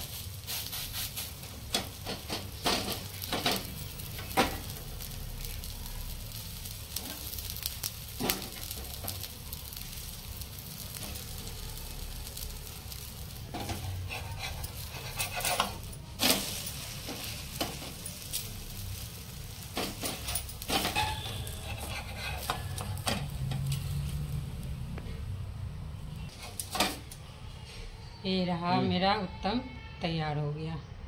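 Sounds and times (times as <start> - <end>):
batter sizzling in oil: 0.0 - 27.2
metal spatula scraping pan: 13.5 - 18.0, 19.7 - 23.7.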